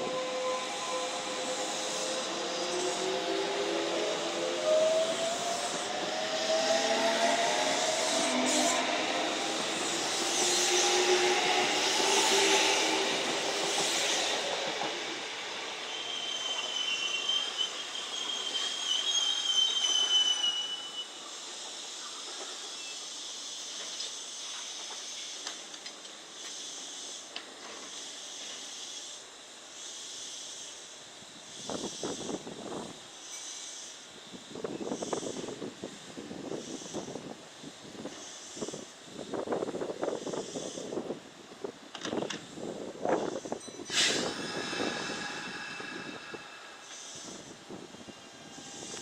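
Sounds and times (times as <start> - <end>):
train wheel squeal: 0.0 - 25.4, 33.2 - 34.0, 43.1 - 49.0
steady hiss: 7.8 - 49.0
train motor humming: 43.9 - 49.0.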